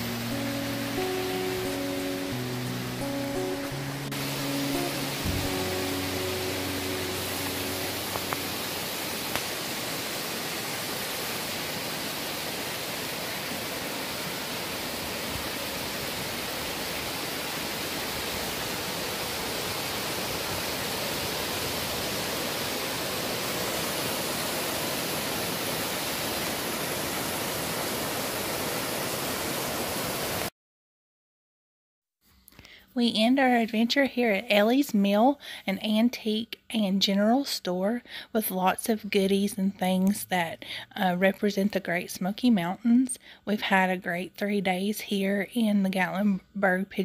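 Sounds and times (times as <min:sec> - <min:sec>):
stream rushing over rocks: 0:00.0 - 0:30.5.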